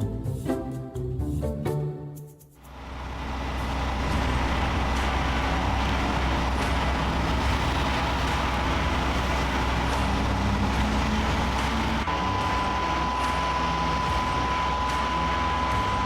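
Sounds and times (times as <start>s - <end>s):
faint steady whine: 2.7s - 16.0s
heavy truck engine running: 2.7s - 16.0s.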